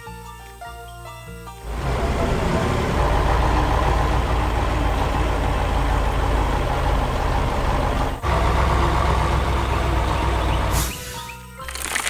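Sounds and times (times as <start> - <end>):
diesel engine running: 1.6 - 11.2.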